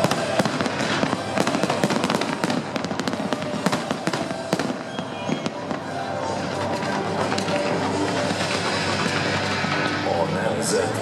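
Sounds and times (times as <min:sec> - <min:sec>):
firework bangs and crackles: 0:00.0 - 0:11.0.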